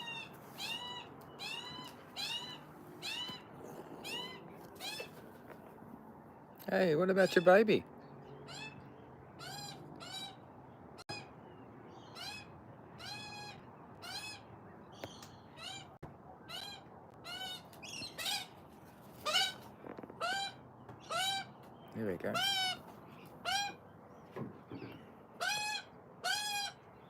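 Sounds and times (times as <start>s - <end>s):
young bird begging calls: 22.3s - 22.8s, 23.4s - 23.8s, 25.4s - 26.9s.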